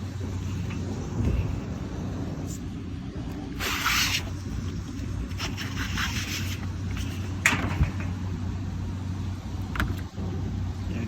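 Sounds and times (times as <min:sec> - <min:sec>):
air filters rustling and scraping: 0:00.0 - 0:08.5
steady low hum: 0:00.0 - 0:11.0.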